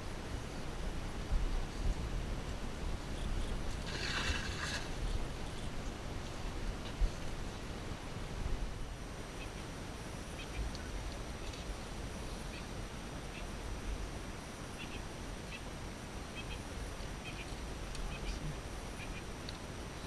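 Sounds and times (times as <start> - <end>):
birds chirping: 16.3 - 19.4.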